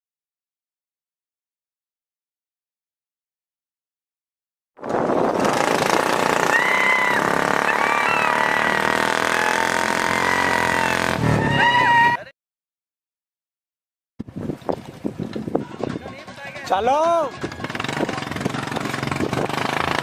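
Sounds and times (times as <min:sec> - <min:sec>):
motorcycle engines revving: 0:04.8 - 0:12.2, 0:17.3 - 0:20.0
people shouting: 0:06.4 - 0:12.3.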